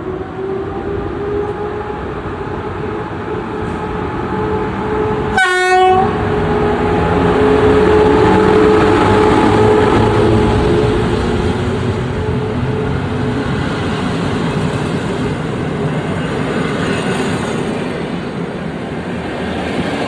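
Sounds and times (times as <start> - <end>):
train rumble with electric whine: 0.0 - 20.0
train horn toot: 5.3 - 11.2.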